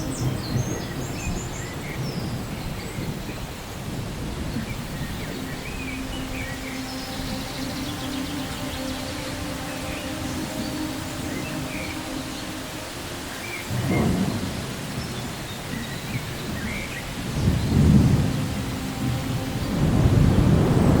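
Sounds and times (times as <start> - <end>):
steady rain: 0.0 - 21.0
rolling thunder: 13.7 - 21.0.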